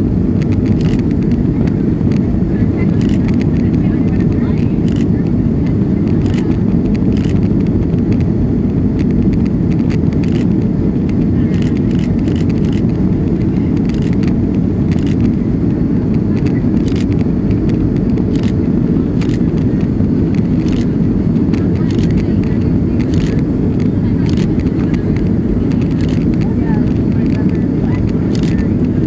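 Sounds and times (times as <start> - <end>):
jet engines roaring in cabin: 0.0 - 29.0.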